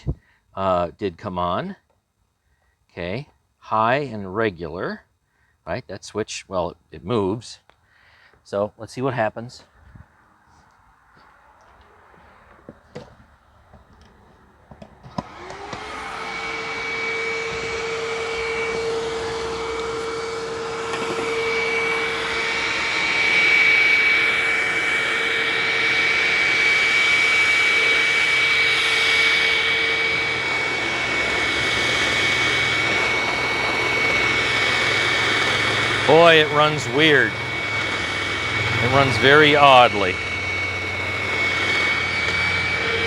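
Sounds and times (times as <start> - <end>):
vacuum cleaner motor whining: 14.1 - 43.0.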